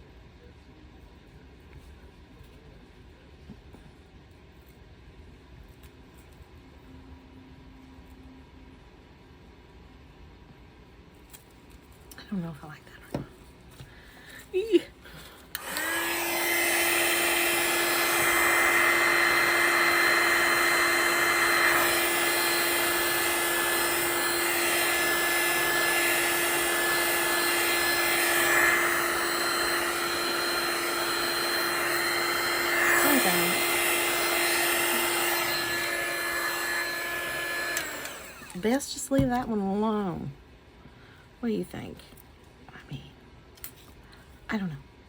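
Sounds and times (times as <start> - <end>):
heat gun blowing: 15.5 - 38.6.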